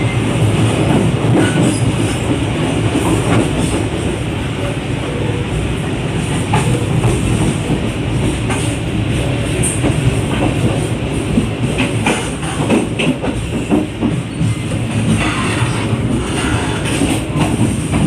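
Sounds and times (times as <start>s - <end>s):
train wheels rumbling on rails: 0.0s - 18.0s
clacks and knocks: 11.4s - 15.4s.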